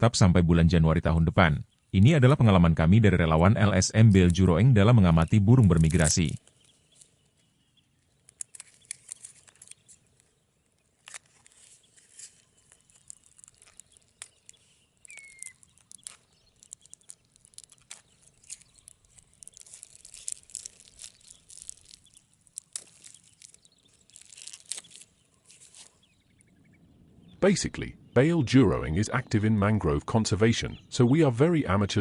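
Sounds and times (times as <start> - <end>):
high chirps and clicks: 8.0 - 31.8
falling whistled bird call: 15.1 - 15.6.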